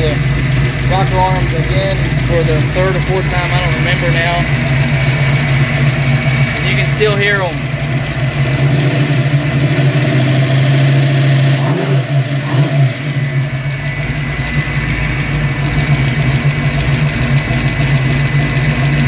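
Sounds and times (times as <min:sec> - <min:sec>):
valvetrain ticking: 0:00.0 - 0:08.6
car engine idling: 0:00.0 - 0:19.0.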